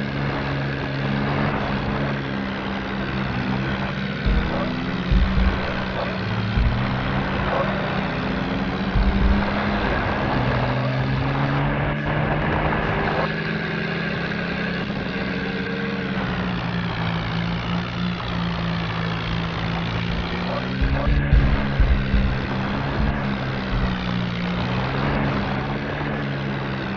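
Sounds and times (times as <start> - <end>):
vehicle engine running: 0.0 - 26.9
short low thumps: 4.2 - 7.6, 8.7 - 10.1, 20.1 - 24.3.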